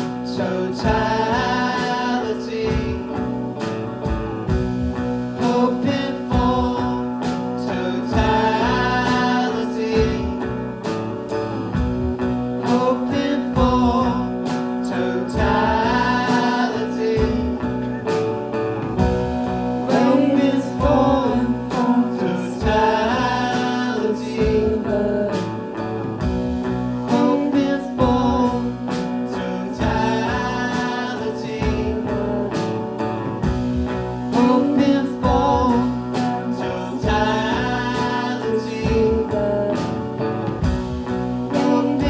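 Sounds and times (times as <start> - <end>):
guitar: 0.0 - 42.0.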